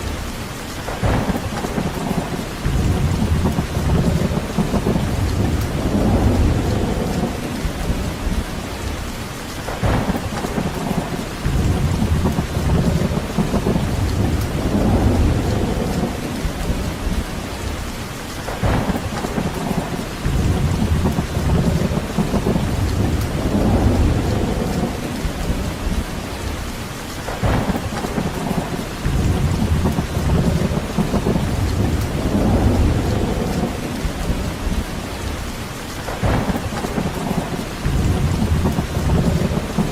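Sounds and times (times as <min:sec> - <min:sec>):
heavy rain: 0:00.0 - 0:39.9
deep low rumbling: 0:02.7 - 0:08.7, 0:11.5 - 0:17.6, 0:20.3 - 0:26.3, 0:29.1 - 0:35.4.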